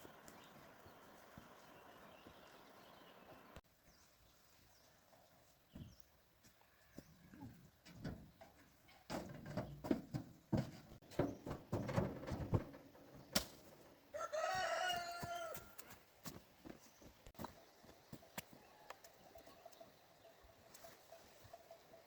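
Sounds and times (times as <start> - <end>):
knocks and crackles: 7.8 - 13.9
rooster crowing: 14.1 - 15.8.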